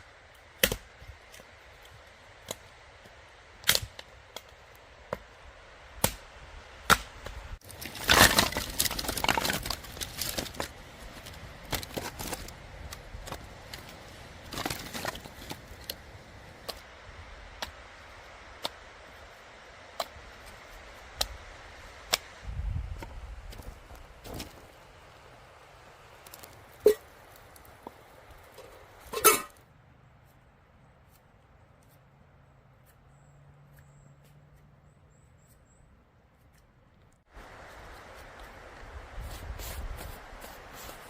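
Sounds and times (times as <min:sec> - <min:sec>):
wood cracking and snapping: 0:06.9 - 0:16.0.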